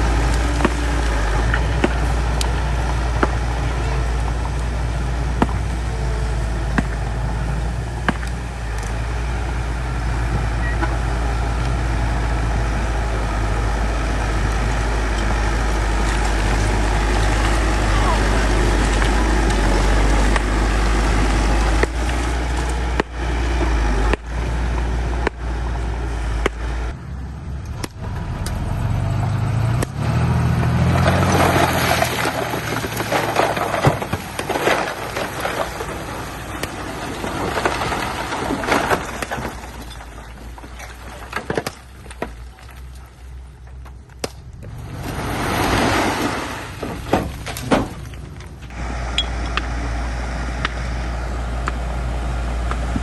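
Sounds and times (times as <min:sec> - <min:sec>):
blade scraping dirt and stones: 0:00.0 - 0:09.1, 0:14.0 - 0:26.7, 0:29.7 - 0:49.4
bulldozer diesel engine: 0:00.0 - 0:53.0.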